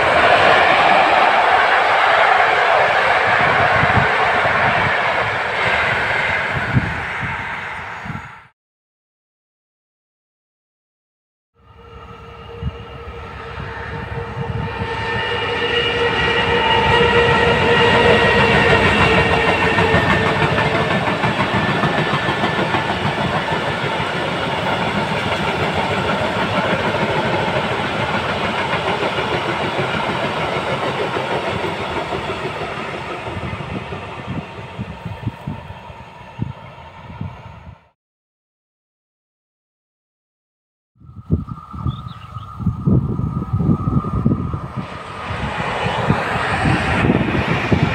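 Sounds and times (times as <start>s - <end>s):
diesel locomotive engine whine: 0.0s - 8.5s, 11.6s - 38.0s, 41.0s - 47.9s.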